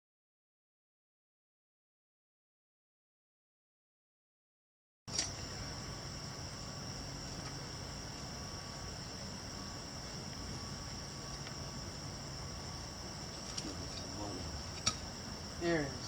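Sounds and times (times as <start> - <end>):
crickets trilling: 5.1 - 16.0
low background rumble: 5.1 - 16.0.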